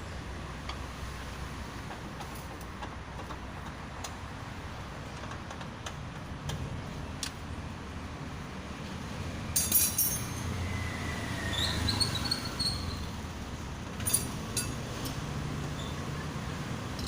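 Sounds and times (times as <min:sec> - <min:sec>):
metal tools and parts clinking: 0:09.6 - 0:10.5, 0:14.0 - 0:15.2.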